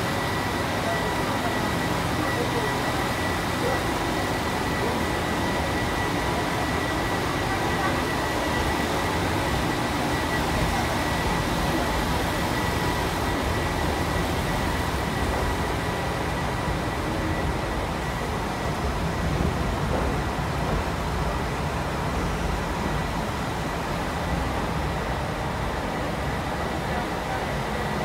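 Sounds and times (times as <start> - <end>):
thin steady high tone: 0.0 - 20.0
train rolling low rumble: 0.0 - 28.0.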